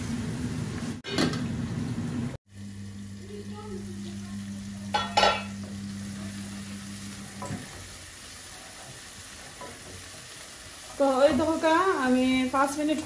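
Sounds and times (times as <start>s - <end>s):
steady low hum: 2.5s - 7.5s
spice paste sizzling in a pan: 2.5s - 13.0s
ringing metallic clang: 4.9s - 5.5s.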